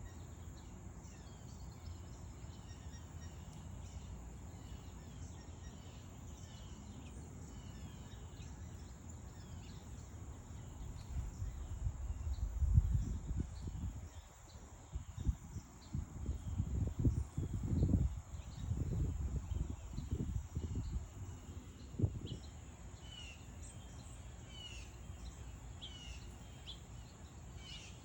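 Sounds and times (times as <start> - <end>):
small birds chirping: 0.0 - 28.0
steady high-pitched hiss: 0.0 - 28.0
low rumbling gusts: 10.9 - 14.2.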